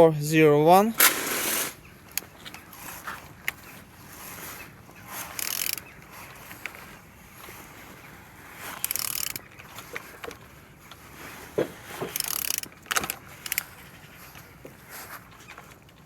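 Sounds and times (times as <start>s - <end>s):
short rasping bursts: 1.0s - 1.8s
metallic ratchet clicks: 5.4s - 5.8s, 8.8s - 9.4s, 12.1s - 13.7s.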